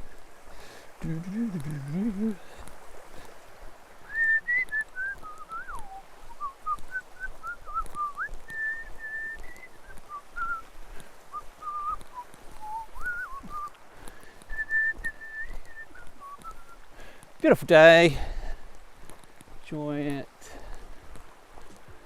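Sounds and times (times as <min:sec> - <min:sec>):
faint forest stream rushing: 0:00.0 - 0:22.0
person whistling a tune: 0:04.1 - 0:10.7, 0:11.3 - 0:13.7, 0:14.5 - 0:16.8.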